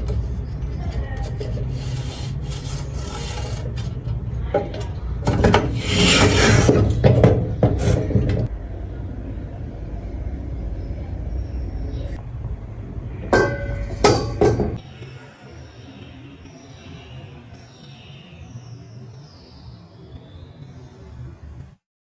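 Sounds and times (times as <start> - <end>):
steady low hum: 0.0 - 17.5
rough rasping rubbing strokes: 0.3 - 4.0, 5.6 - 7.0, 7.7 - 8.2.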